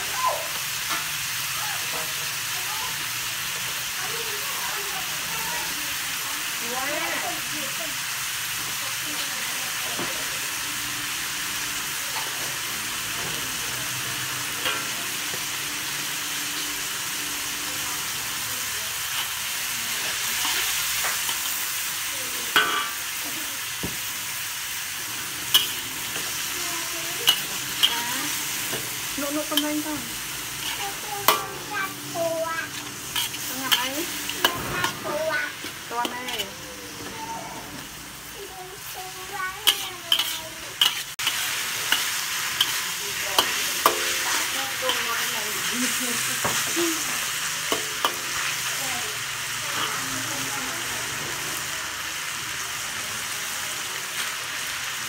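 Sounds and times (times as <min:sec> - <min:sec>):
meat sizzling in a wok: 0:00.0 - 0:55.0
metal spatula scraping a pan: 0:19.0 - 0:21.8, 0:25.1 - 0:37.2, 0:38.8 - 0:48.8.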